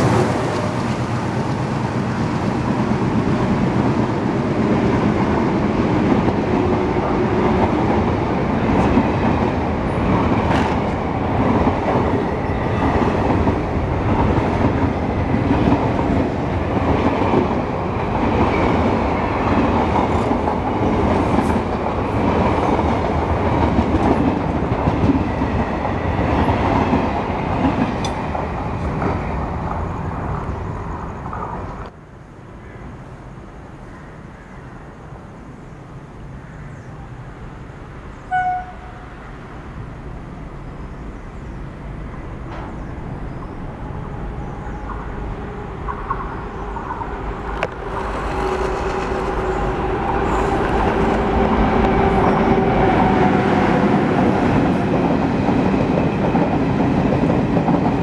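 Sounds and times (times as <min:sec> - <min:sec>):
train wheels clattering over rails: 0:00.0 - 0:30.5, 0:45.8 - 0:58.0
approaching train rumble: 0:00.0 - 0:58.0.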